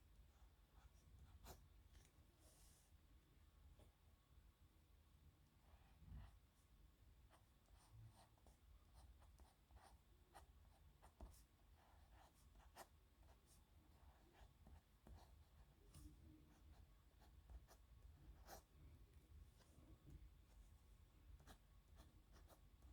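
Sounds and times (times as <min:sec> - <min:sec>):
pen scratching on paper: 0:07.8 - 0:18.7, 0:21.4 - 0:22.9.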